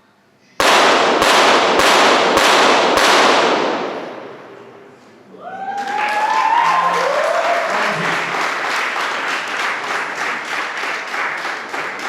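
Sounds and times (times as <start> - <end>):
crowd applauding and cheering: 5.4 - 12.0.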